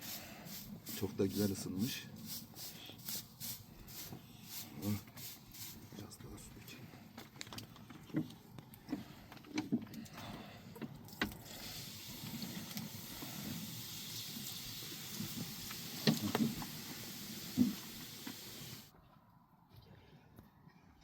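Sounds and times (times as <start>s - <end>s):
water sizzling on hot stone: 0.0s - 5.9s, 11.4s - 18.9s.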